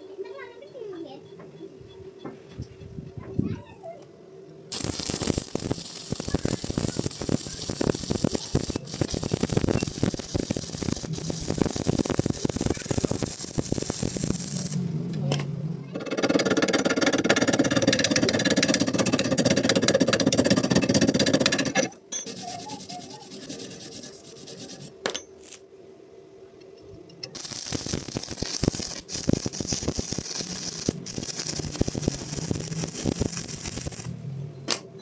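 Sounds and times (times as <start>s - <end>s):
arc welding crackle: 4.7s - 15.4s, 22.3s - 25.7s, 27.2s - 34.8s.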